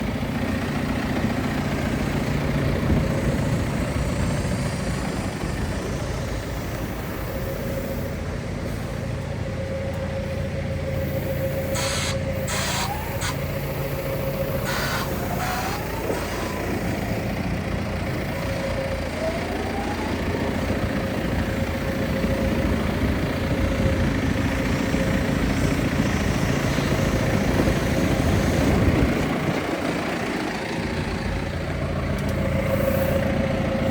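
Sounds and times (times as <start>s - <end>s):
tractor diesel engine running: 0.0s - 33.9s
rising whines: 10.8s - 17.4s.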